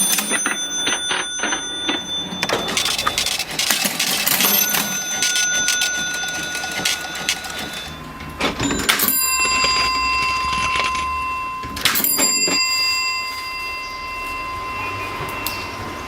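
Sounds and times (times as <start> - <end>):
cash register clunks: 0.0 - 12.8
bell ringing: 0.0 - 15.7.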